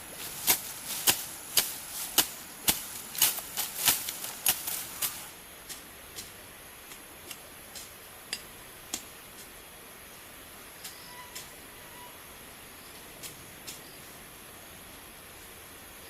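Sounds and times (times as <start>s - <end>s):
blade chopping bamboo: 0.3s - 9.1s.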